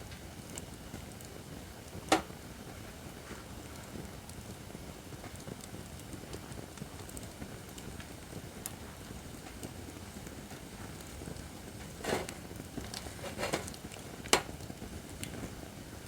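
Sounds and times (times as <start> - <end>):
firewood crackling: 5.3 - 16.0
fire hissing: 10.8 - 14.5.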